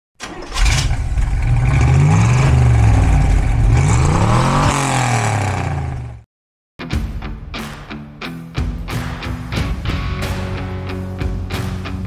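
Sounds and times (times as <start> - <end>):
car engine revving: 0.2 - 6.2.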